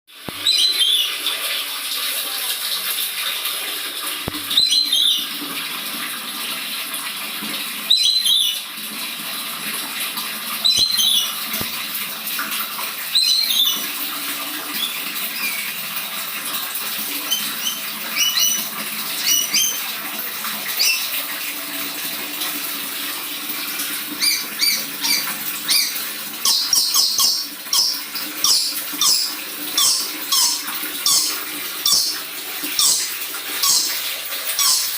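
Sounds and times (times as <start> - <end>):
parrot giving fierce calls: 13.1 - 13.8, 17.2 - 19.8, 20.8 - 21.1, 24.2 - 32.2, 32.8 - 34.9.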